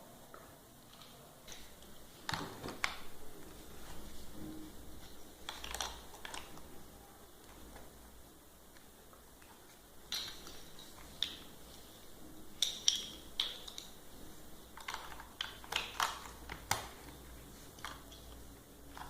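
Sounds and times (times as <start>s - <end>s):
plastic building blocks clicking: 0.9s - 3.1s, 5.4s - 6.8s, 8.8s - 11.6s, 12.6s - 14.0s, 14.7s - 19.0s.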